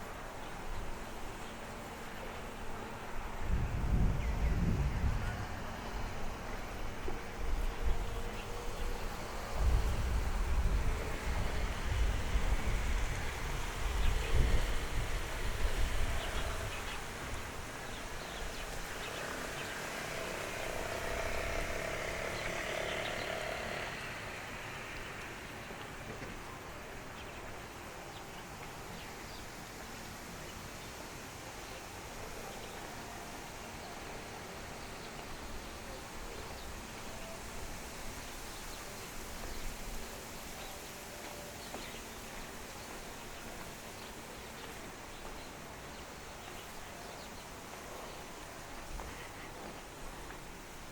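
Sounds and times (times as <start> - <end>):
wind rumble on microphone: 0.0 - 26.0
background hiss: 0.0 - 50.9.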